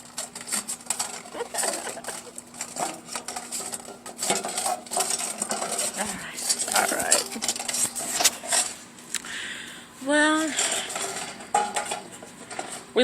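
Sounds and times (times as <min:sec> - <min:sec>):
bowl clinking and clattering: 0:00.0 - 0:08.7, 0:10.5 - 0:12.9
dog eating: 0:00.0 - 0:08.8.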